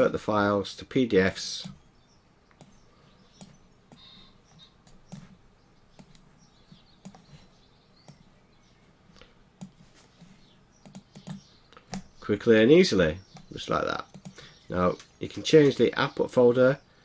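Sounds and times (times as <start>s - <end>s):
computer mouse clicks: 2.4s - 8.3s, 9.1s - 12.2s, 13.3s - 14.4s.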